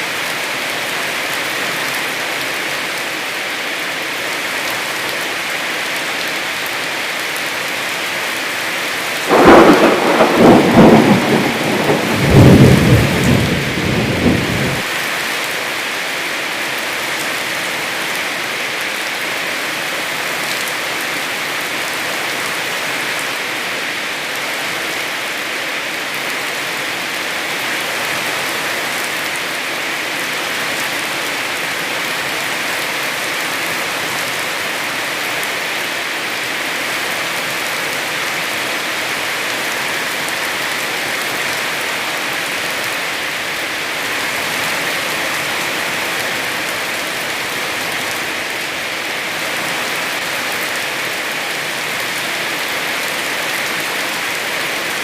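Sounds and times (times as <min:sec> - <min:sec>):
heavy rain hissing: 0:07.9 - 0:18.8.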